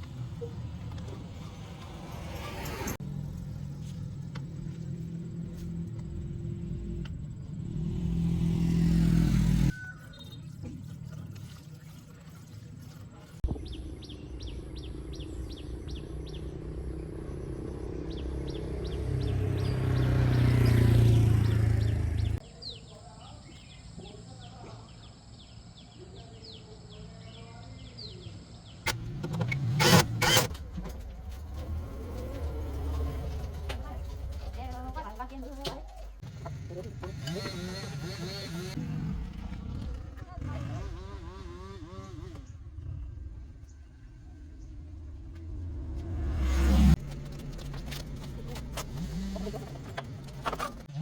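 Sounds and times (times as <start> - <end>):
vehicle engines passing: 0.0 - 9.8, 13.8 - 22.4, 28.9 - 51.0
birds chirping: 13.4 - 51.0.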